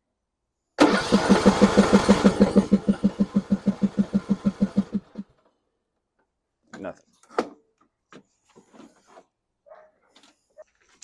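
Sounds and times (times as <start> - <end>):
starter cranking mower engine: 0.8 - 5.2.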